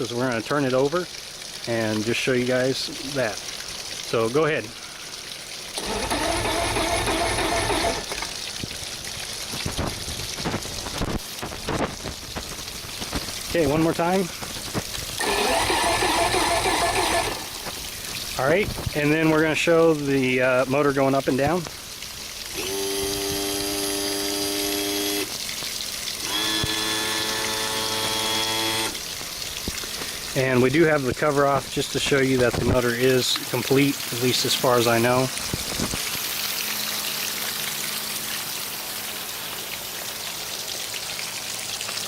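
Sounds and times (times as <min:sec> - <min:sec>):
electric starter cranking engine: 0:05.8 - 0:08.4, 0:15.2 - 0:17.8, 0:22.5 - 0:25.3, 0:26.2 - 0:29.0
electric trim pump whining: 0:05.8 - 0:08.4, 0:15.2 - 0:17.8, 0:22.5 - 0:25.3, 0:26.2 - 0:29.0.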